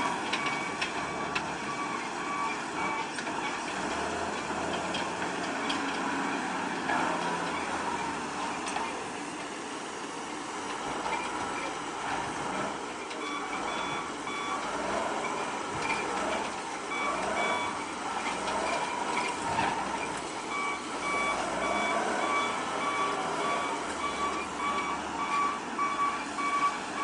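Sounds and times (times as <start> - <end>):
reversing alarm beeping: 0.0 - 3.6, 12.7 - 27.0
diesel machinery working: 0.0 - 27.0.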